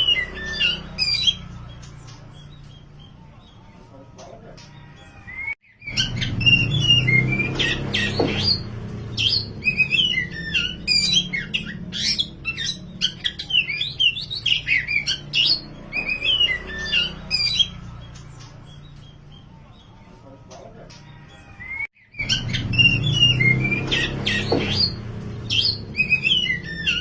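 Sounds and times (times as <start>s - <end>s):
bird singing whistles and trills: 5.3s - 17.8s, 21.6s - 27.0s.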